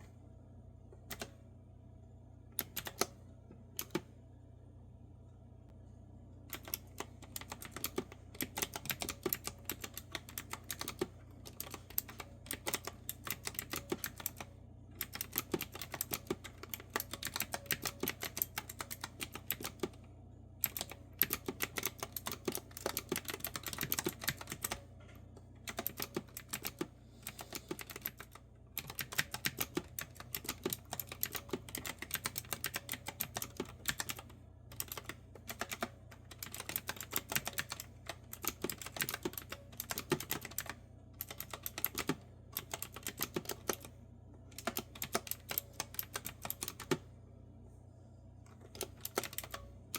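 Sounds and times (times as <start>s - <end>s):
faint low hum: 0.0s - 49.9s
fast typing on clicky keyboard: 2.6s - 3.1s, 6.5s - 20.0s, 20.6s - 24.8s, 25.6s - 43.9s, 44.5s - 47.0s, 48.7s - 49.6s.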